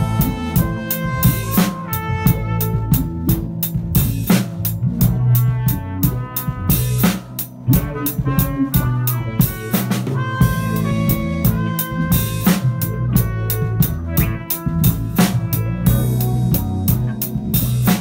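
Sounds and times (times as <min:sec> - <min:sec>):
big band jazz-funk groove: 0:00.0 - 0:18.0
snare and bass drum hits: 0:00.0 - 0:18.0.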